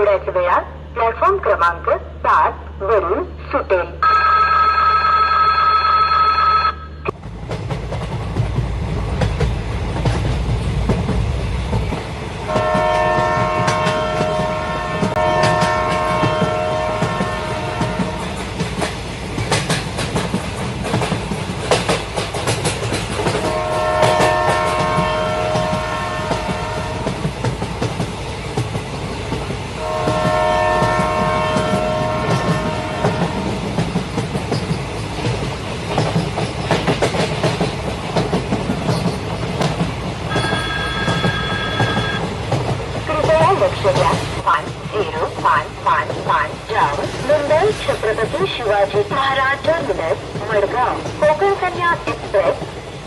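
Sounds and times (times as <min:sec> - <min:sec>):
train rumbling: 0:00.0 - 0:53.0
wheels clacking over rail joints: 0:07.2 - 0:53.0
train horn blast: 0:12.5 - 0:18.4, 0:23.4 - 0:27.2, 0:29.8 - 0:33.5.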